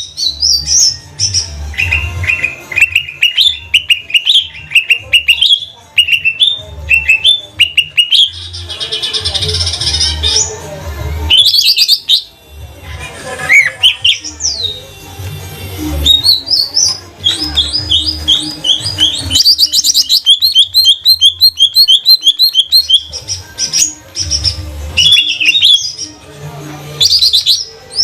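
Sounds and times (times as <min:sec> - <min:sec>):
bird singing whistled phrases: 0:16.1 - 0:23.1, 0:24.3 - 0:26.0.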